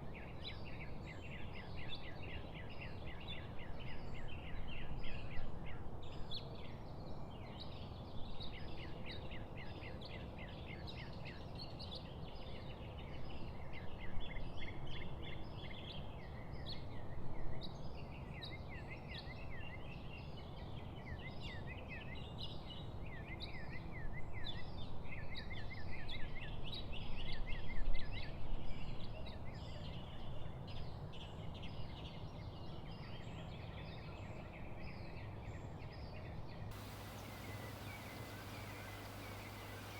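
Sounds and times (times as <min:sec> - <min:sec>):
songbirds chirping and singing: 0:36.7 - 0:39.9
steady rushing background: 0:36.8 - 0:39.9.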